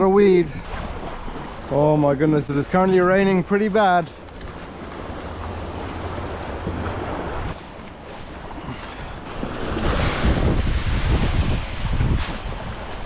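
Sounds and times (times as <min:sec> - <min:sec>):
wind buffeting microphone: 0:08.4 - 0:13.0.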